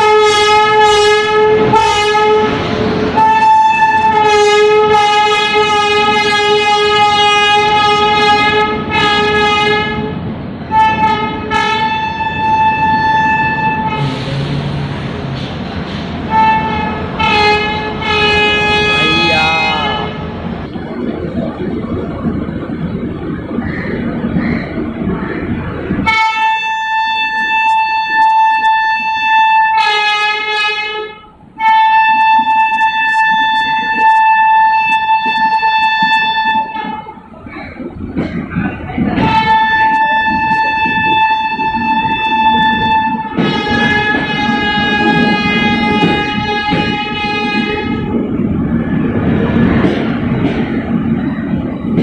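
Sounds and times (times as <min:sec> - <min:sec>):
train horn blasts: 0:00.0 - 0:14.8, 0:16.3 - 0:20.3, 0:26.0 - 0:37.1, 0:39.2 - 0:48.2.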